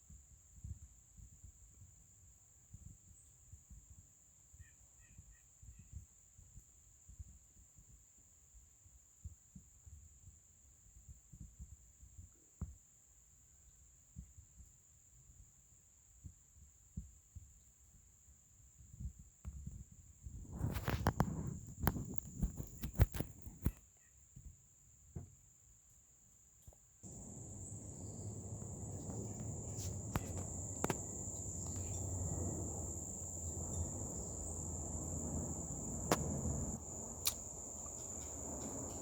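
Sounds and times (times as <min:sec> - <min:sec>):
insects trilling: 0:27.0 - 0:39.0
low rumble: 0:27.0 - 0:39.0.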